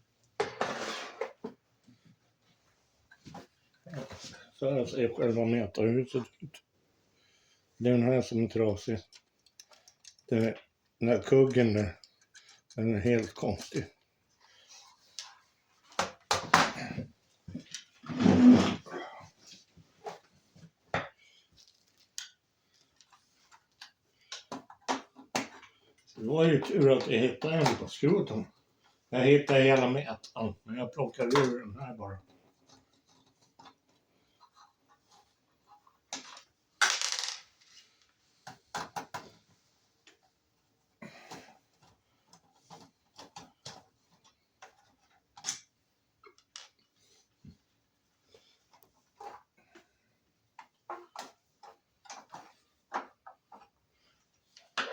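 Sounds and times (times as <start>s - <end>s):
tools and parts clicking: 9.1s - 10.3s
small parts clicking and tapping: 9.1s - 10.8s, 11.4s - 13.4s.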